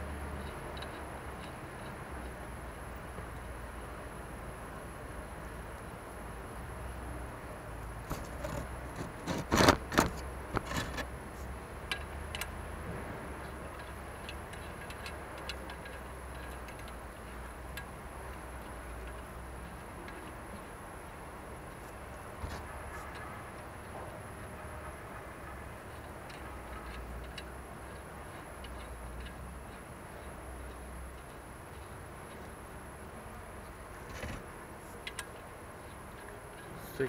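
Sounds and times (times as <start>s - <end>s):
light metal ticks: 0.2s - 3.6s, 11.8s - 12.6s, 13.4s - 33.8s, 34.9s - 37.0s.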